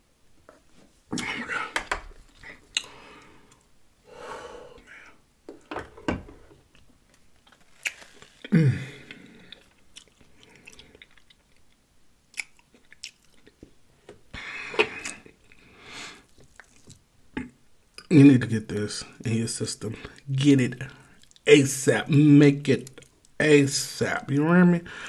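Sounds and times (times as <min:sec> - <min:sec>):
chewing and lip-smacking: 0:07.5 - 0:08.3, 0:09.1 - 0:13.8, 0:16.3 - 0:17.0, 0:21.1 - 0:21.4.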